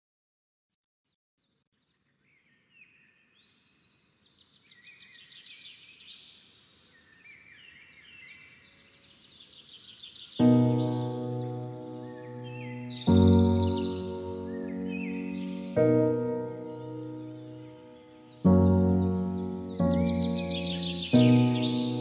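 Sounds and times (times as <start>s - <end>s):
birds chirping: 2.3s - 22.0s.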